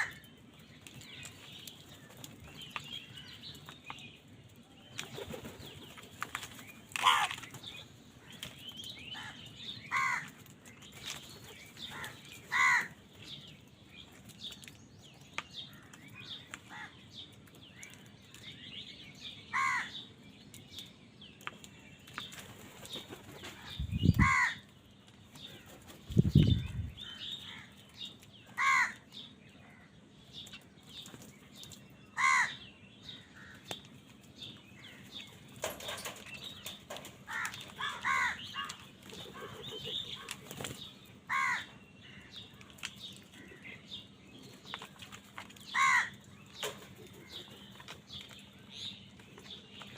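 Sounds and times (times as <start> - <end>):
crows cawing: 7.0 - 7.4, 9.1 - 10.4, 11.9 - 13.0, 16.7 - 17.0, 19.5 - 20.0, 23.6 - 24.7, 28.5 - 29.0, 32.2 - 32.6, 37.3 - 39.6, 41.3 - 42.3, 45.7 - 46.2.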